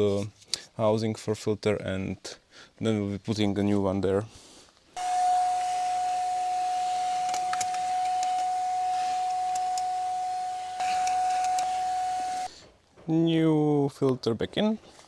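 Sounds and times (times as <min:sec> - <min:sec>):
clicks: 0:05.0 - 0:12.5
vacuum cleaner running: 0:05.0 - 0:12.5.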